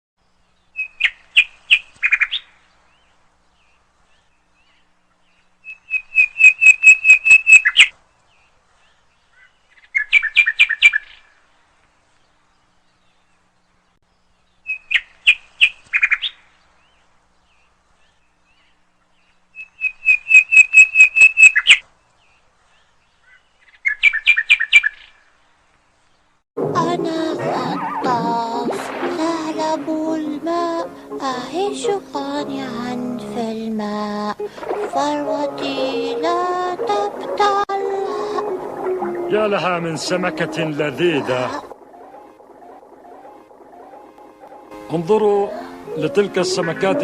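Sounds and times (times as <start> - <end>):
bird chirping: 0.3 - 11.4, 12.2 - 25.3.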